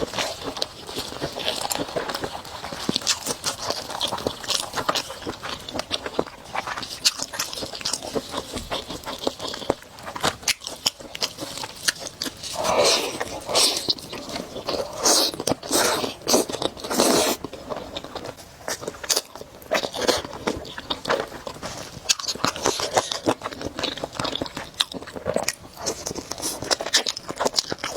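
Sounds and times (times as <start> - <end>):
person chewing noodles: 0.0 - 27.9
noisy slurping: 12.4 - 17.5.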